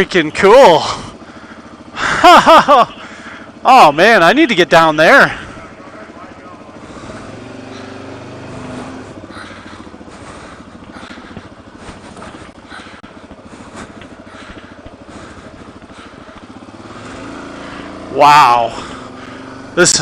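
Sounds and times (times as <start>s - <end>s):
motorcycle engine at low revs: 0.0s - 20.0s.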